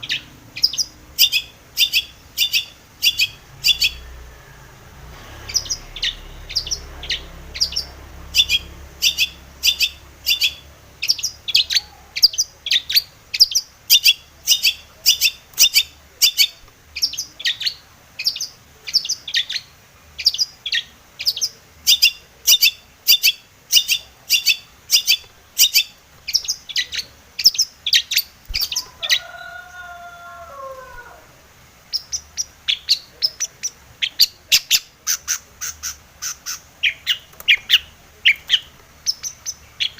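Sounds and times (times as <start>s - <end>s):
bird chattering high notes: 5.4s - 13.0s.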